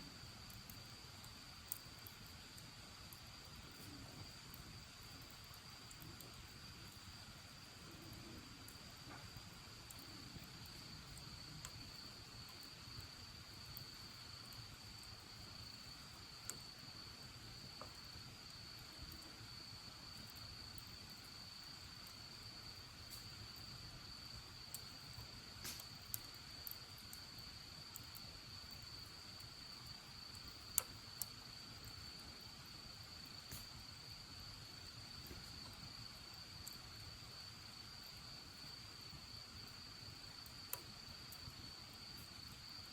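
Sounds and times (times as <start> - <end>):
crickets chirring: 0.0 - 42.9
bonfire pops and crackles: 0.1 - 37.2, 37.9 - 42.9.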